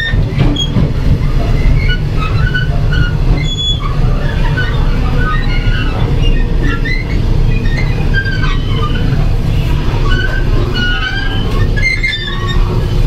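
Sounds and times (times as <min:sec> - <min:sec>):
train wheels rumbling: 0:00.0 - 0:13.0
short high-pitched squeals: 0:09.8 - 0:13.0.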